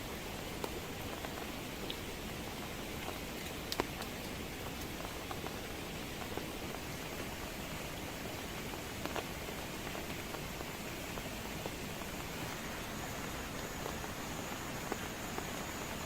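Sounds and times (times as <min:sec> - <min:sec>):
heavy rain hiss: 0:00.0 - 0:16.0
raindrop taps: 0:03.0 - 0:06.8.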